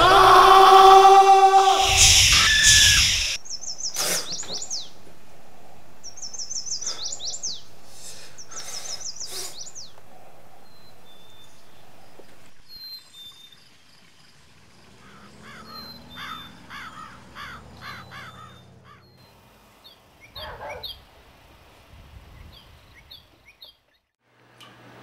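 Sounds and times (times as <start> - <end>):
steady noise: 0.0 - 3.4
harsh bird calls: 0.0 - 13.4, 14.8 - 21.1
high chirps of small birds: 1.8 - 5.0, 6.0 - 14.2, 15.0 - 21.0.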